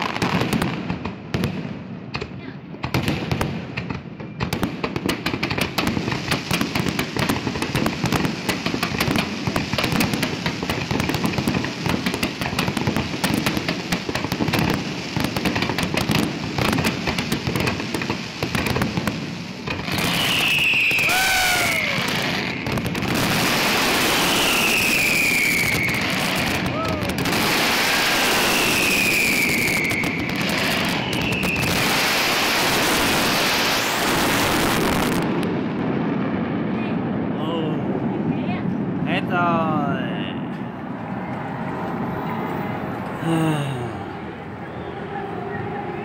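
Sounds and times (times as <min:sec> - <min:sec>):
fireworks crackling and popping: 0:00.0 - 0:43.9
fireworks rushing hiss: 0:04.8 - 0:35.6
falling firework whistles: 0:19.7 - 0:35.2.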